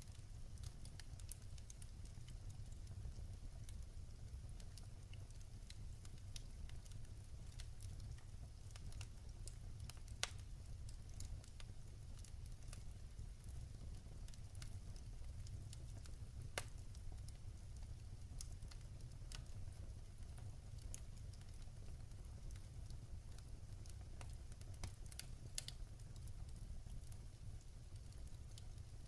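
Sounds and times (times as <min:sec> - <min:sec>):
fire crackling: 0:00.0 - 0:29.0
wood fire rumbling: 0:00.0 - 0:29.0.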